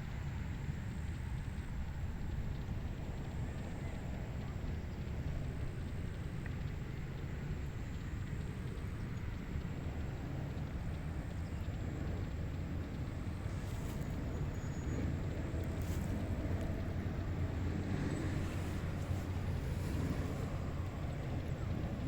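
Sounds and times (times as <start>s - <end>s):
wind blowing: 13.1s - 22.0s.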